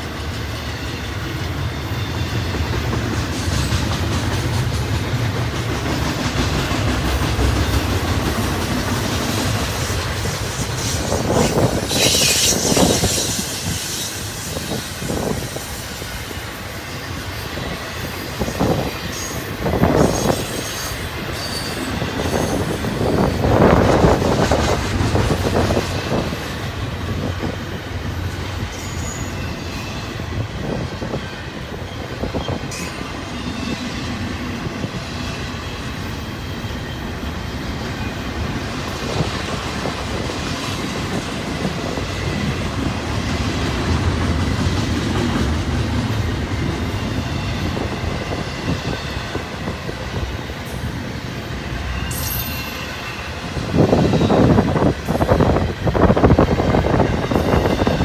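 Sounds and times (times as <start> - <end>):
train wheels rumbling on rails: 0.0 - 58.0
high wheel screech: 10.6 - 15.8.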